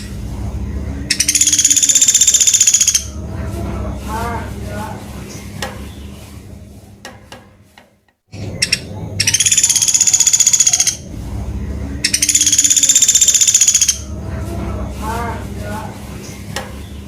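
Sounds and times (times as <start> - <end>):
woodpecker chattering trills: 0.9 - 3.4, 8.4 - 11.2, 12.0 - 14.4.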